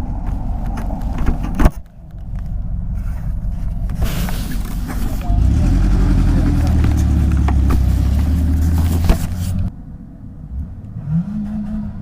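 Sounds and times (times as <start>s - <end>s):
quiet low rumble: 0.0s - 12.0s
motorcycle engine at speed: 5.2s - 9.7s.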